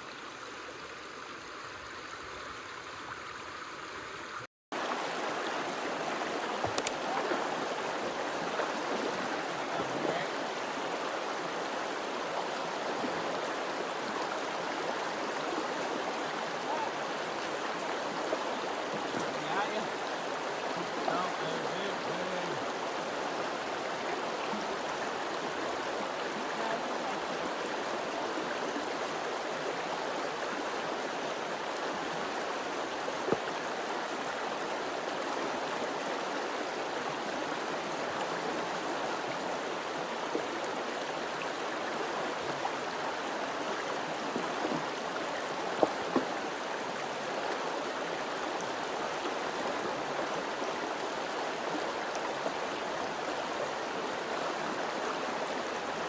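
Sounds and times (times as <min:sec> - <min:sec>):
flowing water: 0:00.0 - 0:56.0
sharp clicks: 0:06.7 - 0:07.0.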